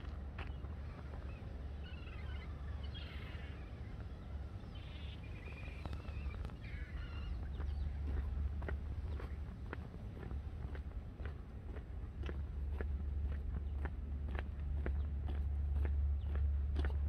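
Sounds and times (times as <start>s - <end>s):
steady low rumble: 0.0s - 17.0s
small birds chirping: 0.4s - 11.3s
light footsteps: 5.8s - 17.0s.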